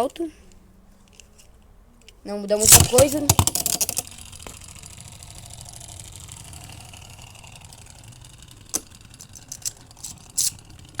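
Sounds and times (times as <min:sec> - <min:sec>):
steady low hum: 0:00.0 - 0:11.0
plastic parts clicking: 0:02.0 - 0:04.5, 0:07.7 - 0:11.0.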